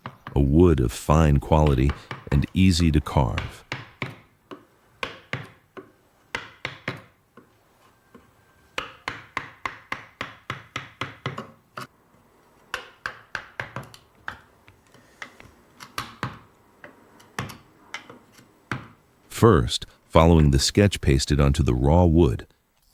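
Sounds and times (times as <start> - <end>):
hammer striking chisel into wood: 1.6 - 2.3, 3.3 - 7.2, 8.7 - 11.6, 12.7 - 14.4.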